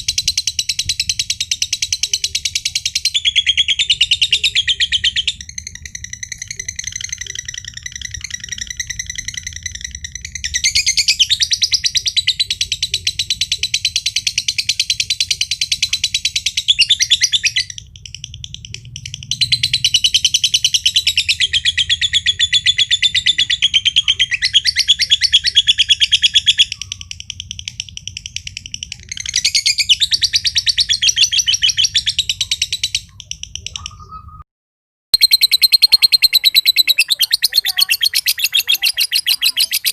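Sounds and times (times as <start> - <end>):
bird chattering trill: 0.0 - 34.4, 35.2 - 39.9.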